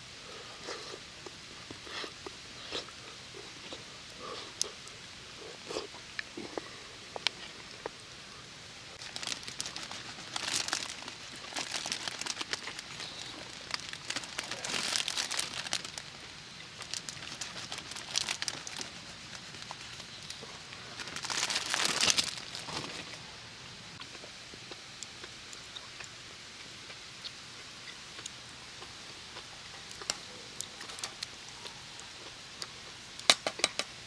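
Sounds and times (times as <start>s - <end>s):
crinkling crunching rustles: 8.9s - 23.4s, 29.9s - 31.4s.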